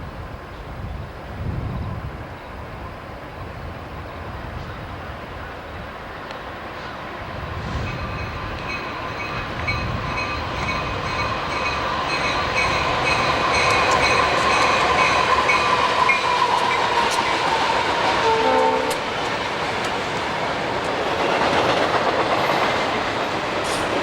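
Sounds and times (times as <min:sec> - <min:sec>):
train rumble: 0:00.0 - 0:24.0
high-pitched ringing from wheels: 0:07.9 - 0:19.2.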